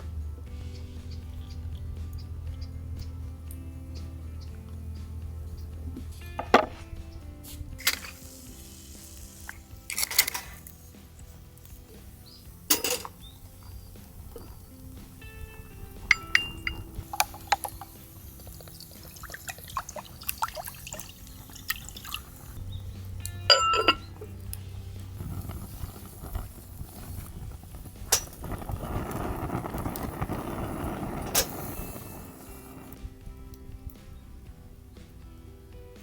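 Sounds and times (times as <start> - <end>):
faint background music: 0.0 - 36.0
glass and dishware clinking: 12.7 - 13.2, 16.1 - 17.7, 23.5 - 24.2
liquid pouring: 16.0 - 22.6.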